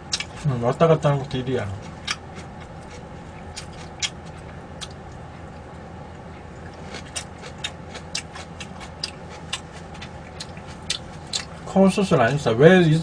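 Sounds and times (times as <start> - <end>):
steady low hum: 0.0 - 13.0
chewing smacks and clicks: 0.1 - 0.5, 1.8 - 5.7, 6.6 - 11.6.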